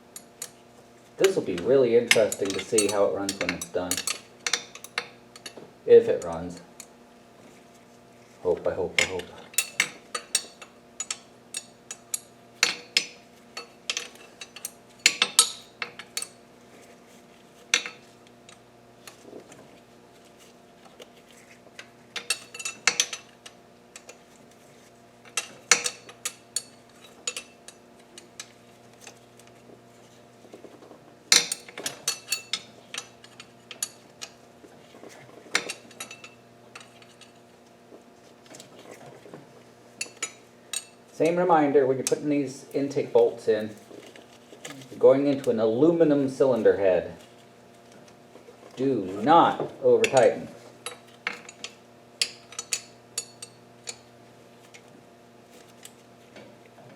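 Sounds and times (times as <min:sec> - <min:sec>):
faint steady hum: 0:00.0 - 0:56.9
hand tools clicking against metal: 0:01.2 - 0:05.6.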